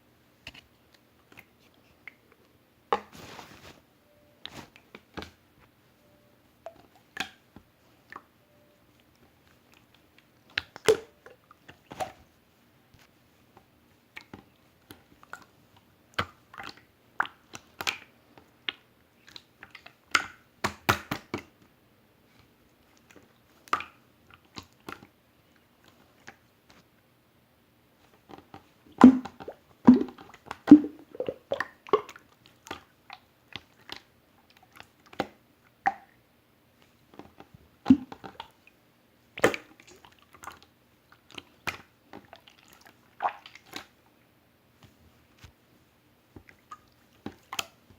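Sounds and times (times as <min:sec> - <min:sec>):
wet clicks and pops: 0:16.1 - 0:21.5, 0:39.4 - 0:40.6
slime squeezed by hand: 0:29.9 - 0:32.0.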